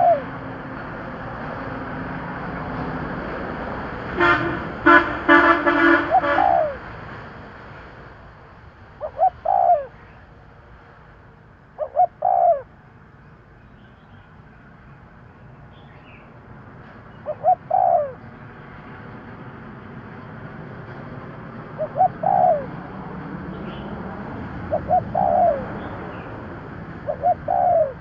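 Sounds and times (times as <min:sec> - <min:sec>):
dove cooing: 0:00.0 - 0:00.4, 0:05.8 - 0:06.9, 0:09.0 - 0:10.0, 0:11.8 - 0:12.7, 0:17.2 - 0:18.2, 0:21.6 - 0:23.0, 0:23.7 - 0:28.0
vehicle approaching: 0:00.0 - 0:28.0
vehicle horn honking: 0:04.2 - 0:06.8.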